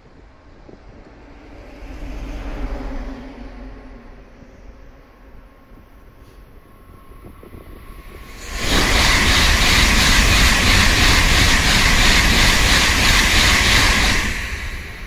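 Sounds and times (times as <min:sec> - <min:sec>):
high-speed train passing: 0:00.0 - 0:15.0.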